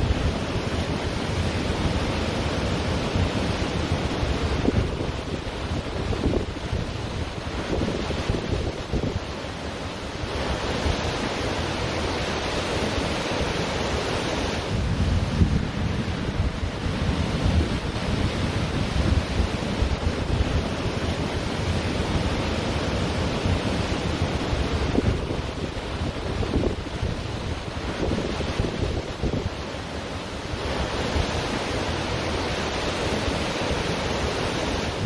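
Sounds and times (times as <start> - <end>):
wind buffeting microphone: 0.0 - 9.4, 14.5 - 29.6
ocean waves on a beach: 0.0 - 35.0.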